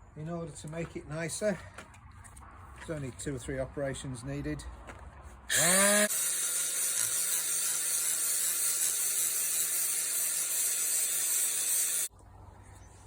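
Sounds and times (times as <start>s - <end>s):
angle grinder grinding steel: 5.5s - 12.1s.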